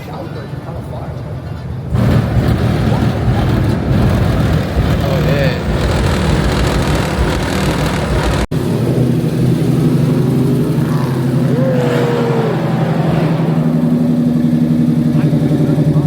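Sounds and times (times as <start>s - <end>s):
car engine idling: 1.8s - 16.0s.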